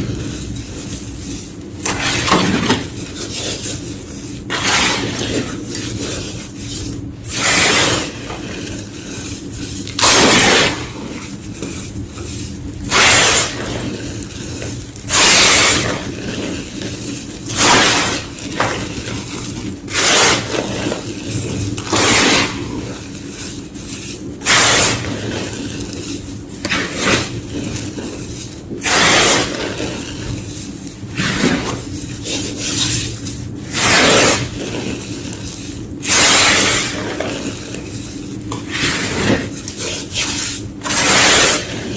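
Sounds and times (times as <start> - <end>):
chalk being crunched: 0.0 - 41.9.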